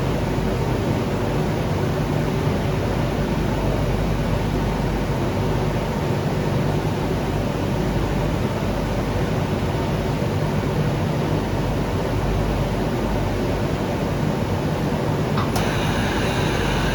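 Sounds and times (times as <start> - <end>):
washing machine rushing noise: 14.8 - 16.9.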